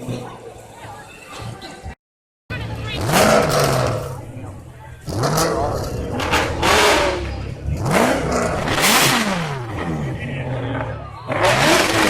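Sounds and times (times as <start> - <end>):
sports car engine revving: 2.5 - 12.0.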